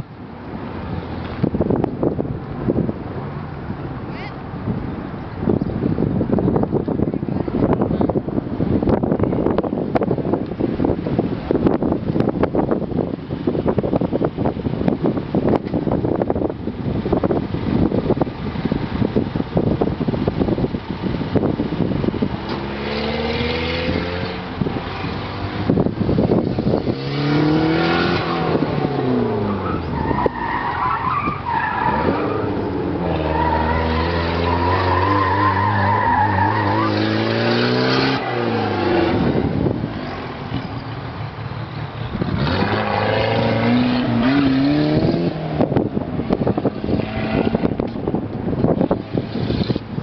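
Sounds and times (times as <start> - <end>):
car engine revving hard: 22.4 - 30.2, 31.6 - 40.2, 42.2 - 47.9.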